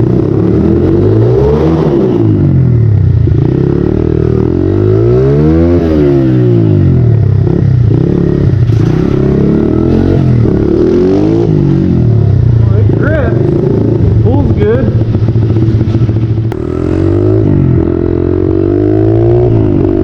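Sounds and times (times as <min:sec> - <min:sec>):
motorbike engine revving: 0:00.0 - 0:20.0.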